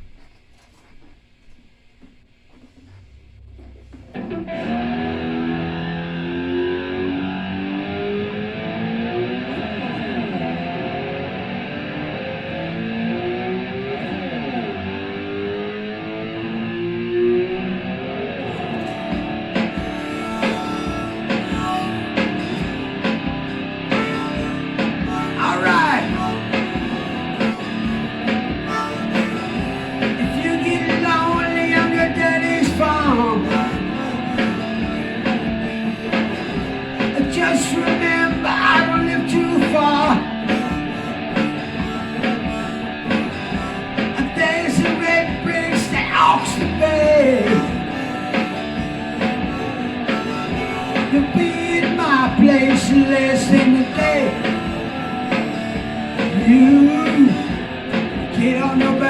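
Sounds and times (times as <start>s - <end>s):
electric guitar rock riff: 3.4s - 59.0s
drums: 18.7s - 59.0s.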